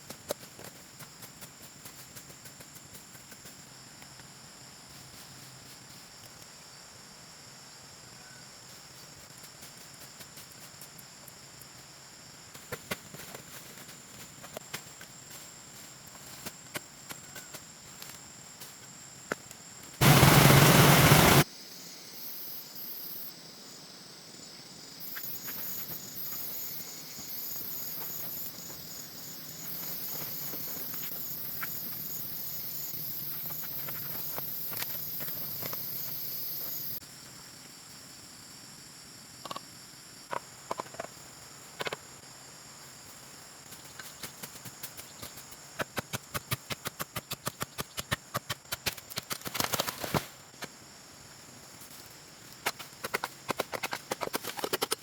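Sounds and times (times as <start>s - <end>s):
insects trilling: 0.4s - 55.0s
loud rush of noise: 20.0s - 21.4s.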